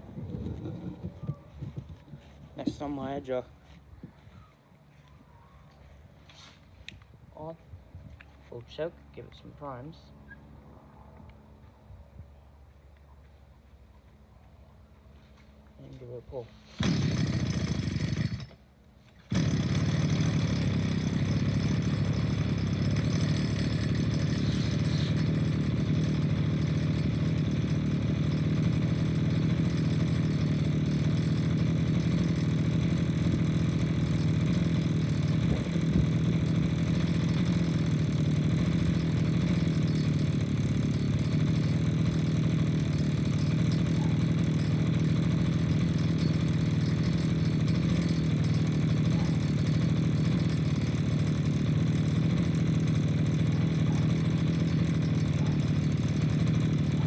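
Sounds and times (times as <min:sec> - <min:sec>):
lawn edger engine idling: 0:01.6 - 0:03.5, 0:15.9 - 0:57.0.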